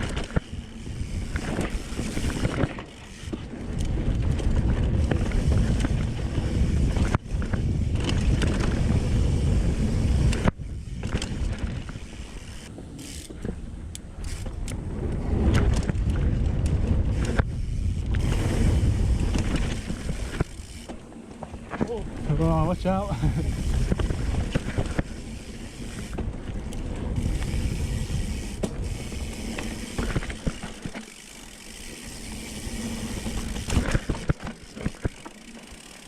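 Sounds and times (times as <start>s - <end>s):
bike chain and frame rattling: 0.0s - 36.0s
wind rushing over microphone: 3.6s - 12.7s, 14.4s - 20.8s.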